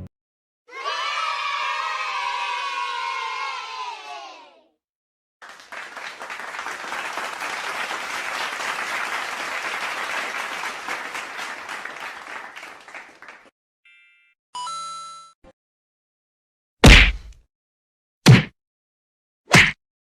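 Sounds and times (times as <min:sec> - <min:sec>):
crowd cheering: 0:00.7 - 0:04.5, 0:05.4 - 0:13.5
crowd applauding: 0:05.4 - 0:13.5.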